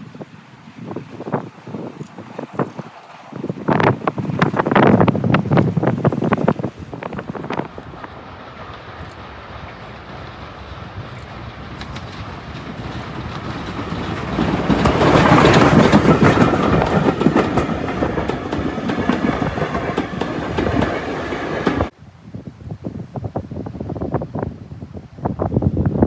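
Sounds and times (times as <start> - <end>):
gusty wind noise: 0.0 - 26.0
steam train passing: 0.1 - 22.0
wheels clattering over rail joints: 11.1 - 21.9.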